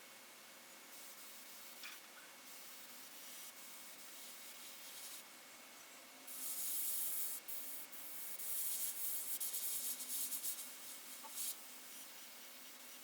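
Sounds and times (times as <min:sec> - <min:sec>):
airbrush spraying hissing air: 0:02.5 - 0:05.2, 0:06.3 - 0:13.0.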